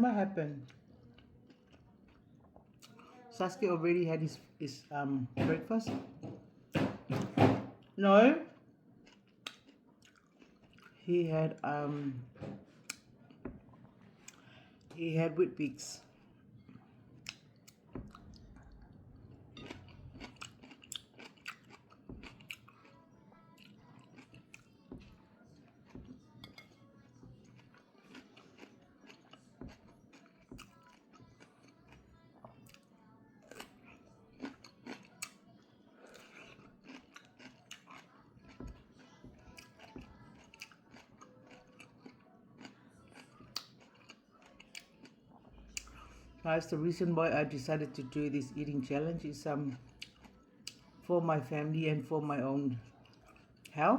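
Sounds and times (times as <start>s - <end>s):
person chewing food: 0.6s - 3.1s, 7.8s - 11.0s, 12.0s - 14.9s, 16.0s - 46.4s, 49.7s - 51.1s, 52.7s - 53.8s.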